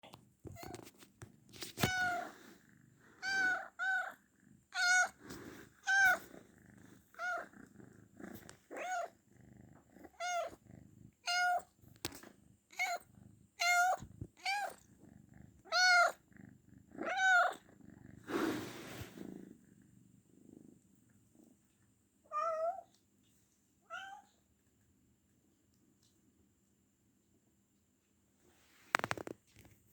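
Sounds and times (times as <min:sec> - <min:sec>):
cat meowing: 0:01.8 - 0:02.3, 0:04.8 - 0:05.2, 0:15.7 - 0:16.2, 0:17.0 - 0:17.6.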